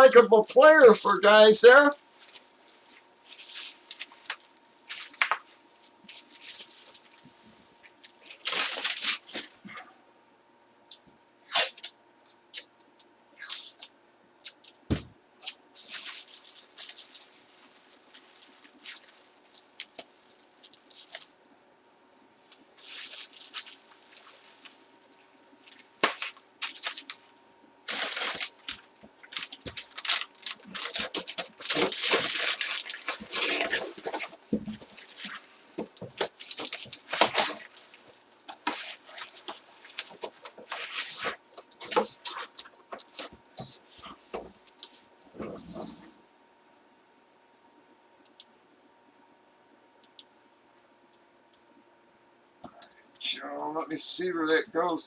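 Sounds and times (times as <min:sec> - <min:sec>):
packaging rustling and crinkling: 0:01.8 - 0:09.6, 0:15.4 - 0:21.4, 0:22.2 - 0:45.0.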